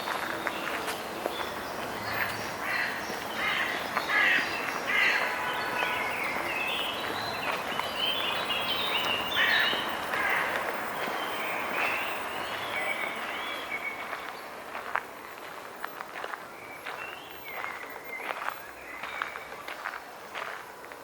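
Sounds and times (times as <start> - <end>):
steady background noise: 0.0 - 21.0
birds giving short calls: 9.0 - 13.9.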